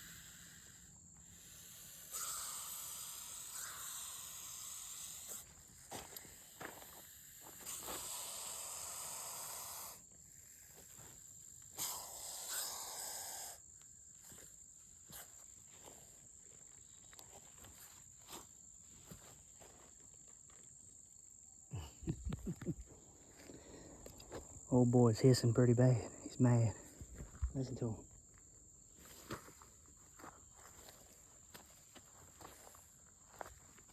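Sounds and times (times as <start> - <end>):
snake hissing: 0.0 - 5.6, 6.2 - 13.6
high insect trill: 0.0 - 33.9.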